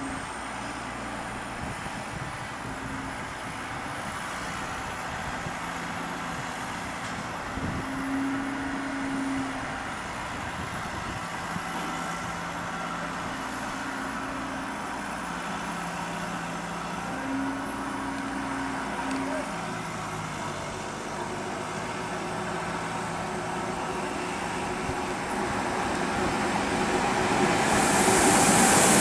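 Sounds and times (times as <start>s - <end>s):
electric train running slowly: 0.0s - 29.0s.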